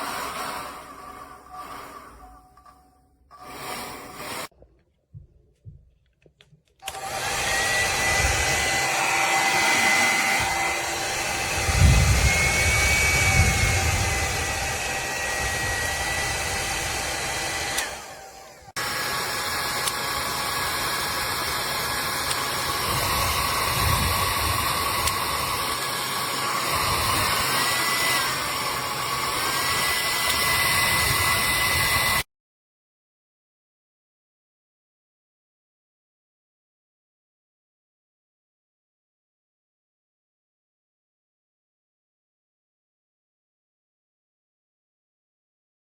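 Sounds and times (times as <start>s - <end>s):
hair dryer running: 0.0s - 2.4s, 3.3s - 4.5s, 6.8s - 32.3s.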